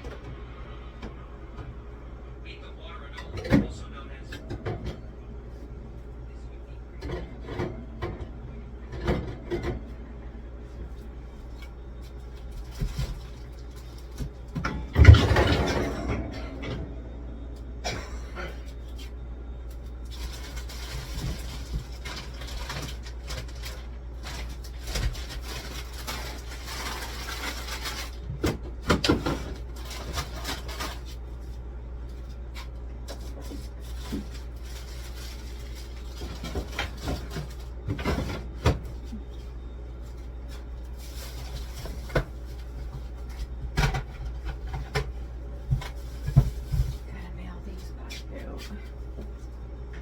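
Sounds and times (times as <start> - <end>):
steady low hum: 0.0 - 50.0
fridge shelves being moved: 12.4 - 17.1, 20.1 - 31.2, 32.6 - 39.1.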